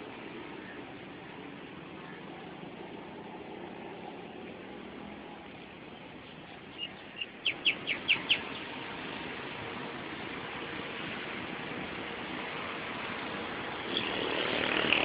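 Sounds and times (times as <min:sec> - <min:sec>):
background noise: 0:00.0 - 0:15.0
bird chirping: 0:06.0 - 0:08.7.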